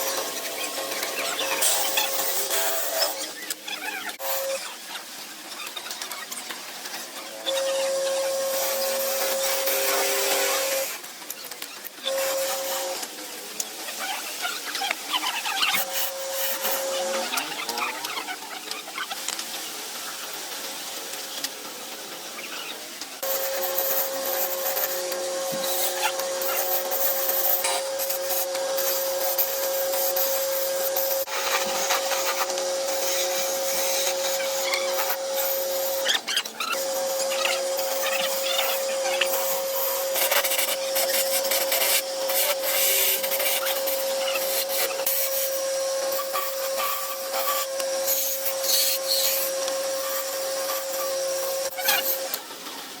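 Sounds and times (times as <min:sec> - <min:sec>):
wood lathe humming: 0:07.6 - 0:11.0, 0:15.8 - 0:17.4, 0:23.2 - 0:52.4
hand tool scraping wood: 0:23.3 - 0:52.3.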